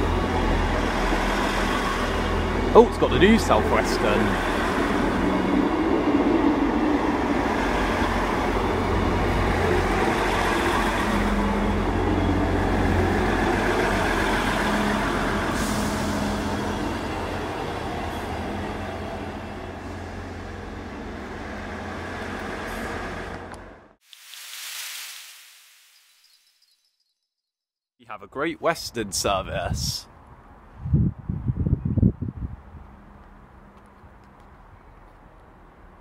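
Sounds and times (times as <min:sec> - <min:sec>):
train engines humming: 0:00.0 - 0:24.0
wheels rumbling along rails: 0:00.0 - 0:24.0, 0:29.8 - 0:36.0.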